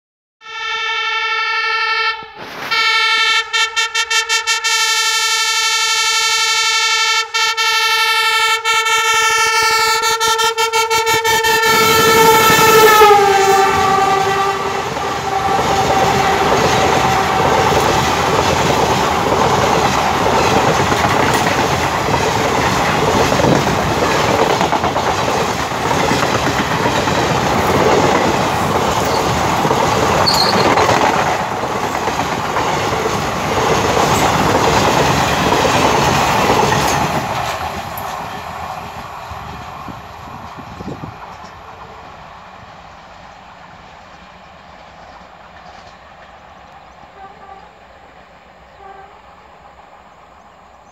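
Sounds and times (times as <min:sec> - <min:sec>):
train horn blast: 0:00.4 - 0:18.2, 0:47.1 - 0:47.9, 0:48.7 - 0:49.5
train coaches rolling past: 0:00.5 - 0:50.9.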